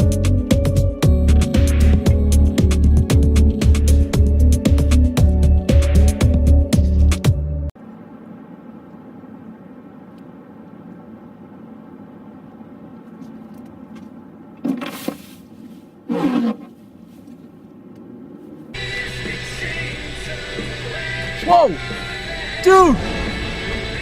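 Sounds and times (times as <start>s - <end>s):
vehicle engine running: 16.7s - 24.0s.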